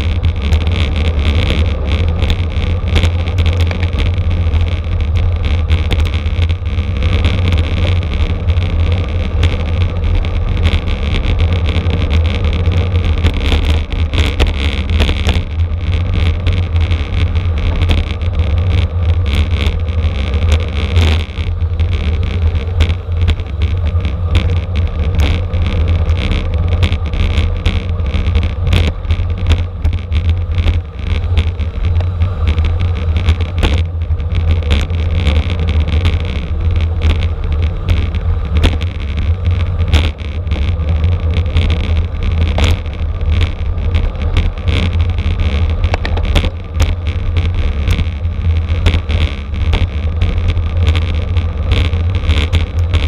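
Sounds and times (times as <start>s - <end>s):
road and bike noise: 0.0s - 53.0s.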